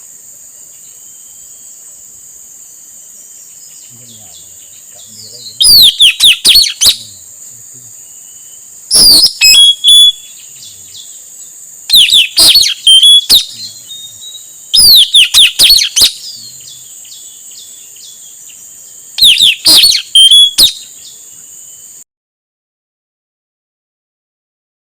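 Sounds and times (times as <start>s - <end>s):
parrot shrill chirps: 5.6s - 7.0s, 8.9s - 10.3s, 11.9s - 13.6s, 14.7s - 16.3s, 19.2s - 20.8s.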